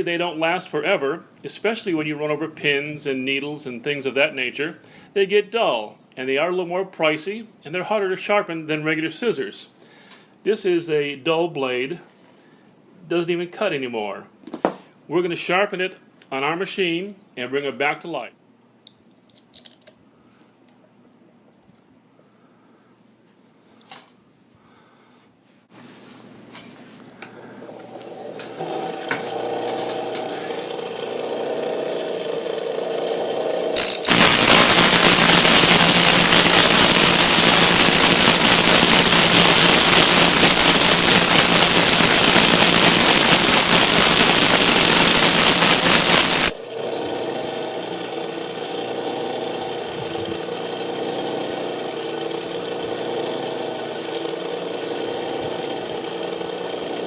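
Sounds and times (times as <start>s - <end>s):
sharpening machine motor running: 28.5s - 57.0s
blade grinding on sharpening wheel: 33.8s - 46.6s.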